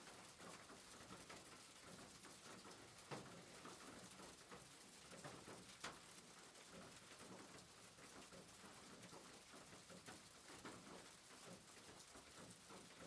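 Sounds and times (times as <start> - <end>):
rain pattering on a rooftop: 0.0 - 13.0.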